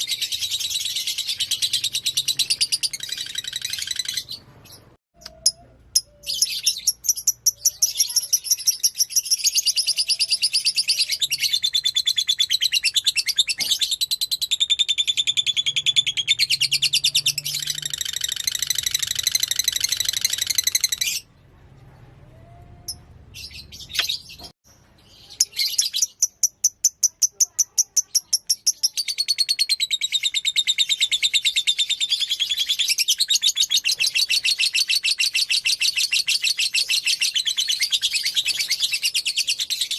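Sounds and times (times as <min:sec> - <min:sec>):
lovebird chattering song: 0:00.0 - 0:21.2.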